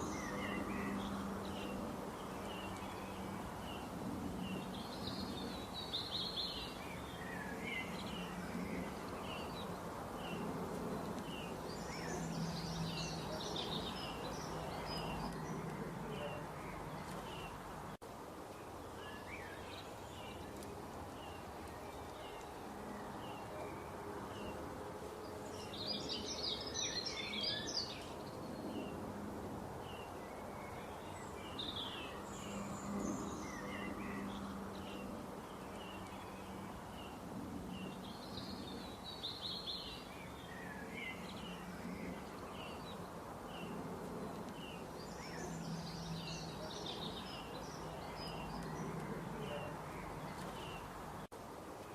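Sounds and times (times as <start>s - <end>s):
bird chirping: 0.0s - 17.7s
birds singing: 0.0s - 18.0s, 18.6s - 29.1s, 29.8s - 51.3s
low background noise: 0.0s - 51.9s.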